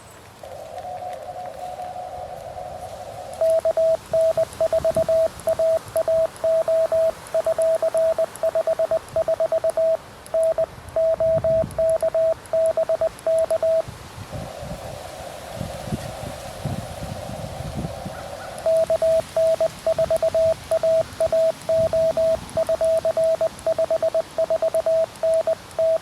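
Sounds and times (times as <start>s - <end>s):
receiver hiss: 0.0s - 26.0s
morse code tone: 3.4s - 13.8s, 18.6s - 26.0s.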